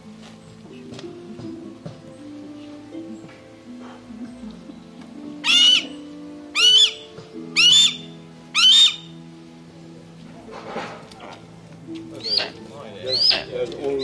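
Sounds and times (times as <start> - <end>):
background music: 0.0 - 14.0
bird of prey calling: 5.4 - 9.2, 12.2 - 14.0.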